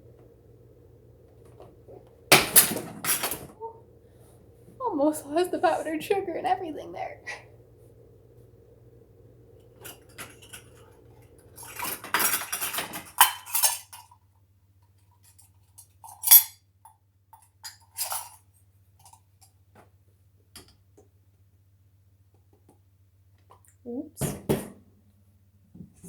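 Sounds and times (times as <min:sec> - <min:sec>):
low background hum: 0:00.0 - 0:26.0
utensils clattering against dishes: 0:02.3 - 0:03.5, 0:09.8 - 0:10.8, 0:11.5 - 0:14.2, 0:17.7 - 0:18.4.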